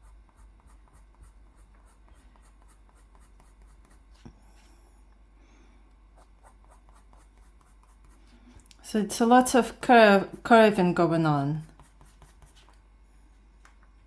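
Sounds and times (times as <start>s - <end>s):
pencil scratching on paper: 0.0s - 4.7s, 6.2s - 8.5s, 10.4s - 12.9s.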